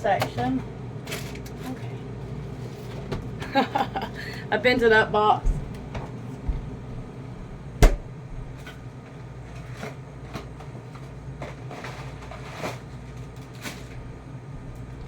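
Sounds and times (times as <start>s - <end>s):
freezer humming: 0.0s - 15.0s.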